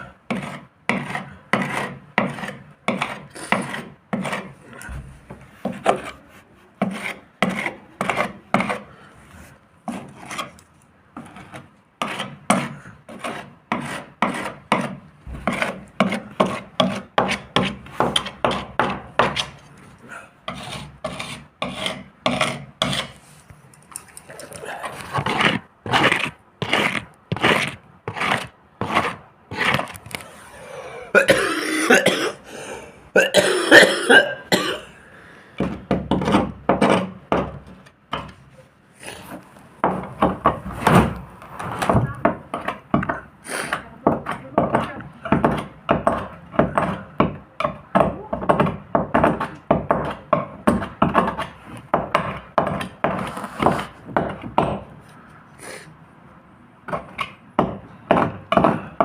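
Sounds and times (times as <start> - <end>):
hand sanding boat hull: 0.0 - 10.6, 11.2 - 19.7, 20.4 - 23.4, 24.6 - 30.0.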